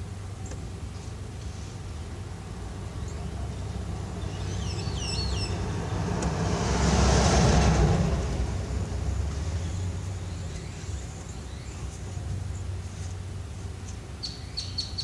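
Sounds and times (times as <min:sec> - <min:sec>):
vehicle driving past: 0:02.6 - 0:11.1.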